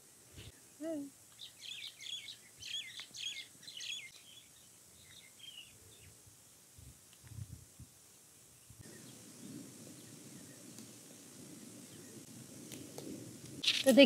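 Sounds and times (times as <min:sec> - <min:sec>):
small bird chirping: 0:00.4 - 0:06.2, 0:08.5 - 0:12.3, 0:13.6 - 0:14.0.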